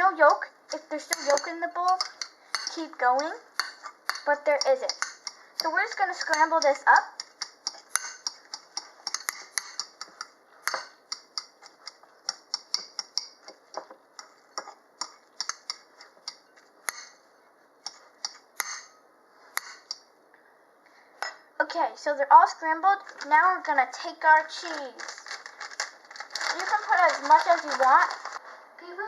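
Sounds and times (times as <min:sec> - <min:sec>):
fork scraping against a bowl: 0:01.1 - 0:02.8, 0:07.2 - 0:13.3, 0:19.6 - 0:20.0.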